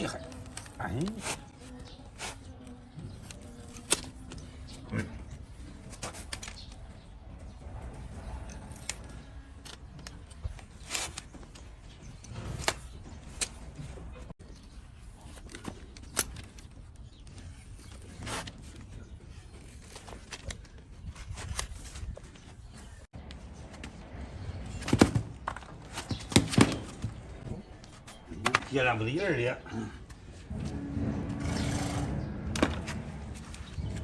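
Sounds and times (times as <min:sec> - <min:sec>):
low steady rumble: 0:30.3 - 0:34.0.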